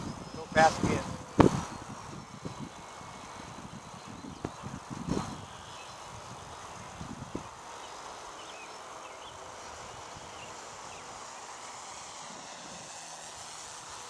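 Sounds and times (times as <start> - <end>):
model plane electric motors whining: 0.0 - 14.0
outdoor hiss: 0.0 - 14.0.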